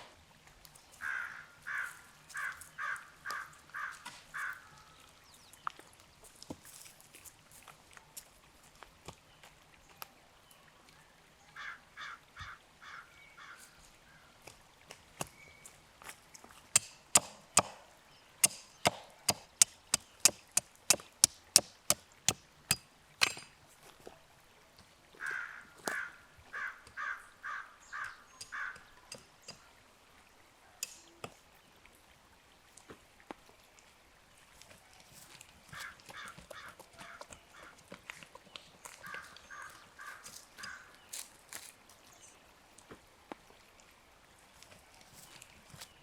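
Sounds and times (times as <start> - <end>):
crow cawing: 1.0 - 4.9, 11.6 - 13.7, 25.2 - 28.9, 35.7 - 37.8, 39.0 - 41.0
sharp chopping strokes: 16.8 - 17.8, 18.4 - 23.5.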